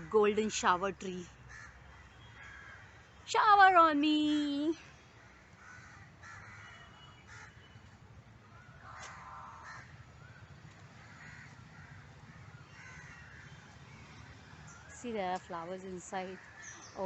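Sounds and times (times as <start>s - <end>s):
crows cawing: 1.5s - 3.0s, 5.2s - 7.6s, 8.5s - 13.6s
low outdoor rumble: 7.3s - 16.7s.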